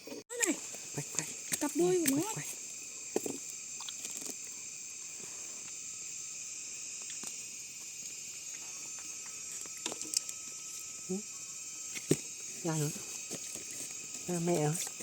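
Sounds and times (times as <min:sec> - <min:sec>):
forest insects chorus: 0:00.0 - 0:15.0.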